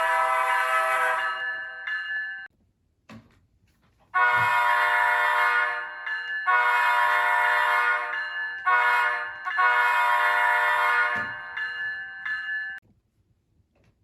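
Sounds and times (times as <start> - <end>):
locomotive air horn blasts: 0.0 - 1.4, 4.2 - 5.9, 6.5 - 11.4.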